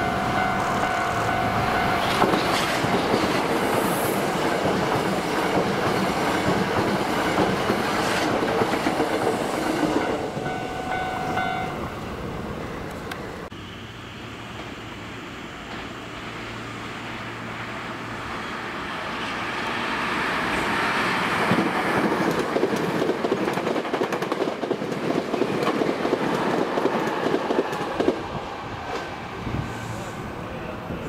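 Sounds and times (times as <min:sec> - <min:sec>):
wheels clattering on rails: 0:00.0 - 0:11.5, 0:21.4 - 0:28.3
electric train passing: 0:00.0 - 0:31.0.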